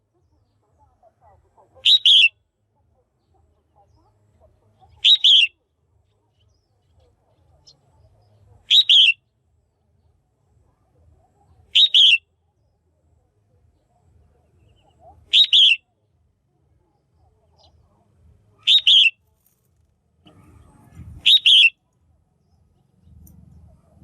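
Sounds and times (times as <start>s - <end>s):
bird double-noted chirp: 1.8s - 2.4s, 5.0s - 5.5s, 8.7s - 9.2s, 11.7s - 12.2s, 14.6s - 15.8s, 18.6s - 19.2s, 21.2s - 21.8s
faint low rumble: 16.0s - 24.0s.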